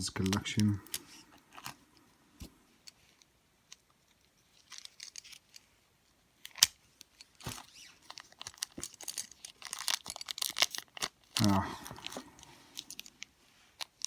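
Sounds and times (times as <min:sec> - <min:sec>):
package rustling: 0:04.0 - 0:05.7, 0:06.4 - 0:14.0.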